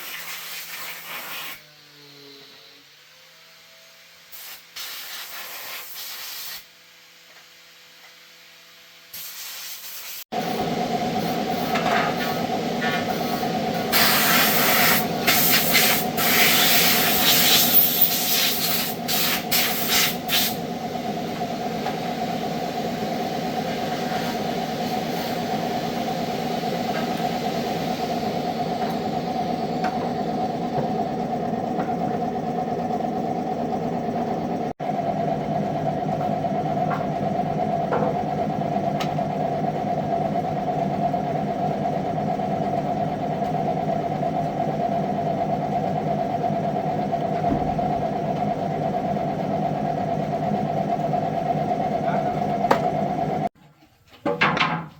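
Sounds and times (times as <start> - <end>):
short bursts of hissing: 4.3 - 6.6, 9.2 - 10.2
machine motor humming: 10.3 - 53.6.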